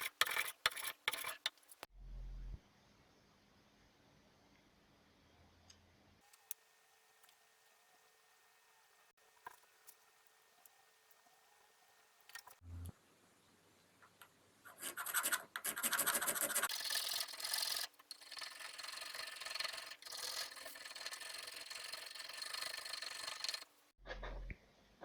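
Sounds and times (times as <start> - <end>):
wood filing with a rasp: 0.0 - 1.5, 15.8 - 23.7.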